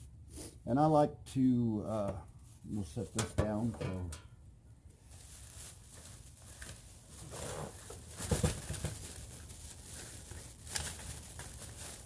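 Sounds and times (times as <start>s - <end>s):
packaging rustling: 5.0s - 12.0s.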